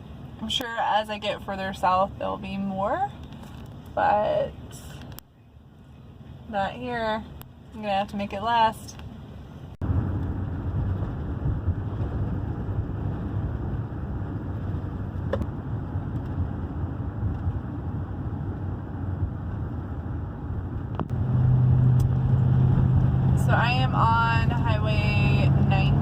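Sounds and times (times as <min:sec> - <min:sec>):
van engine and road drone: 0:00.0 - 0:26.0.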